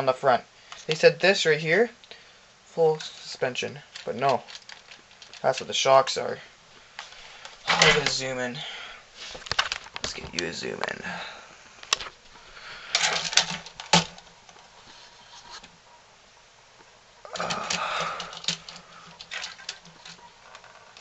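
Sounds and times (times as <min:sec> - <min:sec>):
handling clicks and rustling: 0:02.8 - 0:08.6, 0:09.2 - 0:11.0, 0:11.8 - 0:15.8, 0:16.8 - 0:21.0.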